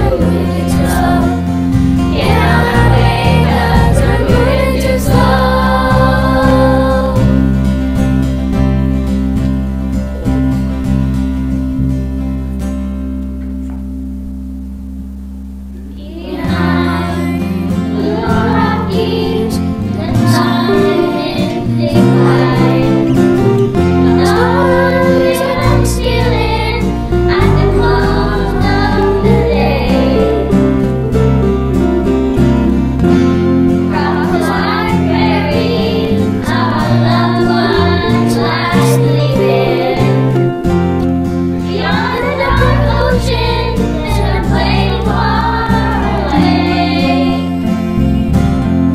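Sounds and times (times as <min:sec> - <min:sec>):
children's choir singing: 0:00.0 - 0:07.5, 0:15.9 - 0:31.2, 0:32.0 - 0:40.6, 0:41.6 - 0:48.2
instrumental backing music: 0:00.0 - 0:48.9.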